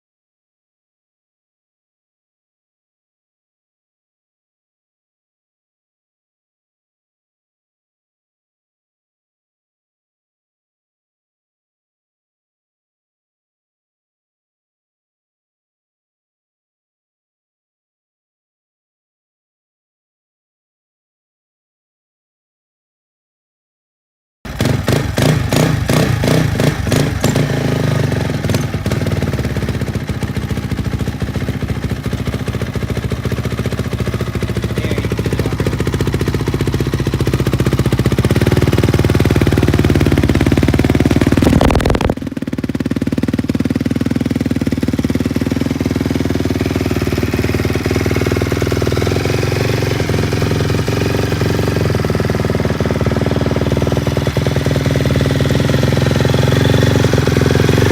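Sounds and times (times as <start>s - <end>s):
dirt bike engine revving: 24.5s - 57.9s.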